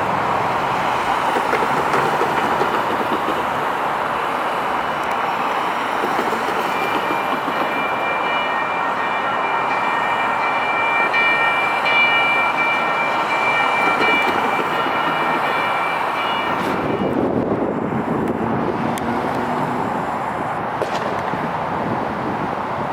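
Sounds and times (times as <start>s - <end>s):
light rail train rushing past: 0.0s - 22.9s
high-pitched ringing tones: 6.6s - 17.2s.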